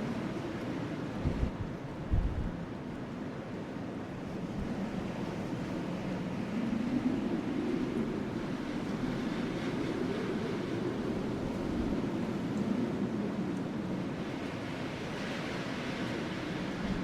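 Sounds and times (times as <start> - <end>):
wind blowing: 1.2 - 2.7, 4.4 - 15.2.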